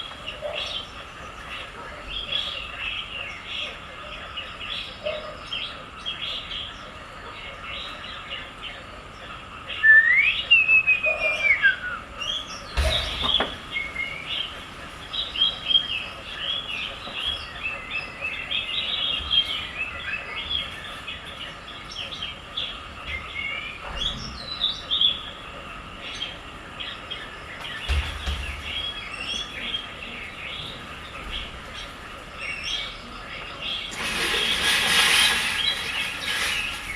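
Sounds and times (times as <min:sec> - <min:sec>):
small birds chirping: 0:00.0 - 0:36.9
whistled bird call: 0:09.8 - 0:14.3.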